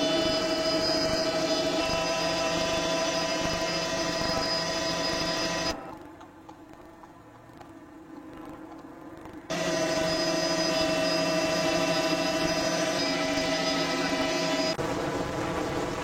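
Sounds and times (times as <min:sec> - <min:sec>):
mechanical whine over hum: 0:00.0 - 0:06.0, 0:09.5 - 0:16.0.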